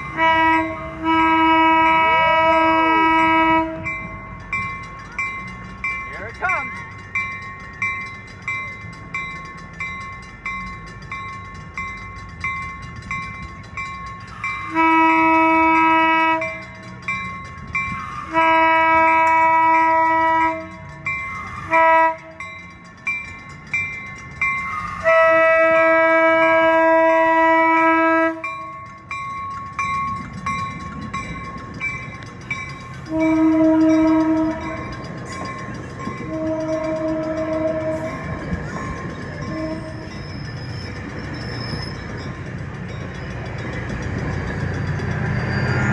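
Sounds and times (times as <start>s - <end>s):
train horn blasts: 0.0s - 4.1s, 14.6s - 16.8s, 18.2s - 20.9s, 21.5s - 22.5s, 24.7s - 28.7s, 33.0s - 35.1s, 36.1s - 38.5s, 39.4s - 40.2s
crossing warning bell dinging: 0.0s - 45.9s.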